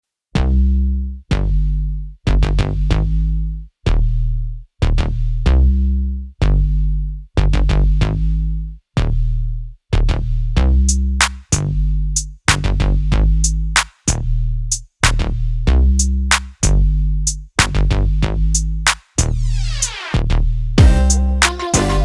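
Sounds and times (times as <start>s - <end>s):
music with heavy bass beat: 10.0s - 22.0s.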